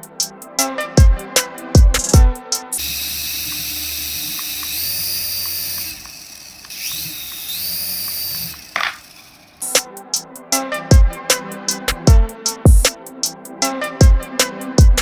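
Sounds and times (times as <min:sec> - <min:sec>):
toy electric motor whirring: 0:02.8 - 0:09.8.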